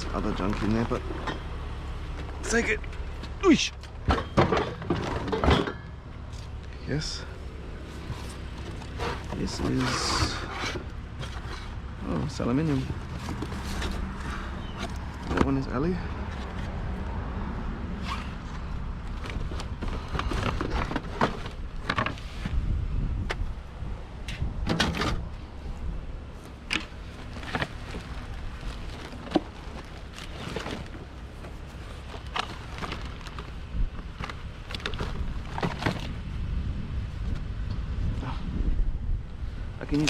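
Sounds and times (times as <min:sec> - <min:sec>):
metal items knocking and clanking: 0:04.0 - 0:05.9.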